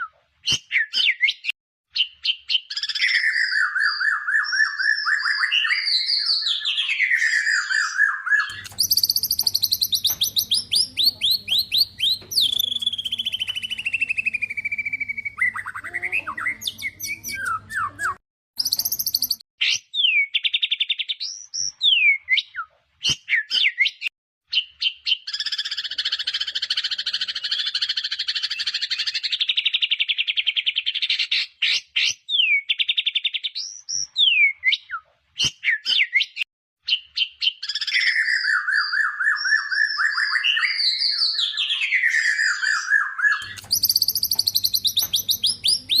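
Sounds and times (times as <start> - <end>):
bird singing varied song: 0.5 - 22.6, 35.6 - 46.0.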